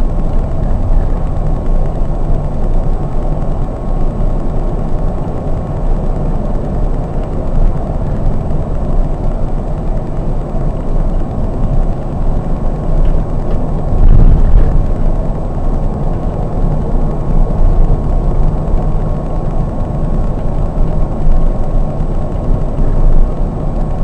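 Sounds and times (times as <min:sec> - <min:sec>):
coach engine and road rumble: 0:00.0 - 0:24.0.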